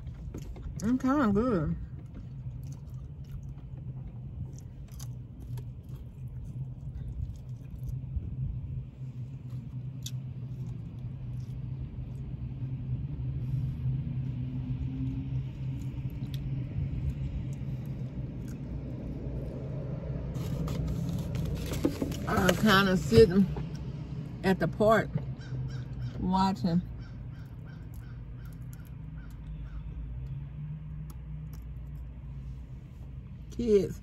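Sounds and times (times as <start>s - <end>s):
quiet chewing: 0.0s - 0.8s, 1.8s - 12.7s, 13.4s - 18.9s, 26.9s - 32.7s
low rumbling hum: 0.0s - 34.0s
food handling ticks: 27.3s - 32.2s.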